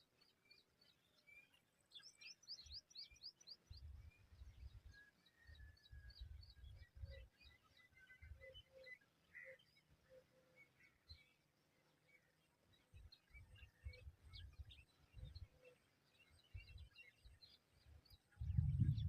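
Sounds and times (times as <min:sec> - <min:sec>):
faint bird chirps: 0:00.0 - 0:19.0
low rumbles on microphone: 0:18.4 - 0:19.0.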